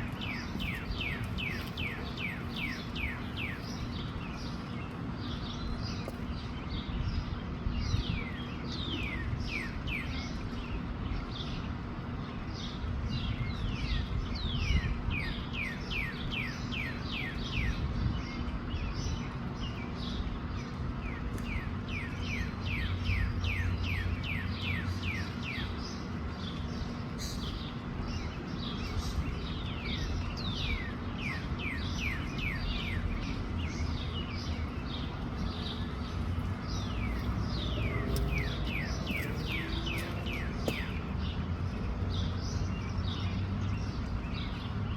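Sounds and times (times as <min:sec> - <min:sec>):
wind rumble on microphone: 0:00.0 - 0:22.0, 0:22.6 - 0:44.9
small birds chirping: 0:00.0 - 0:44.9.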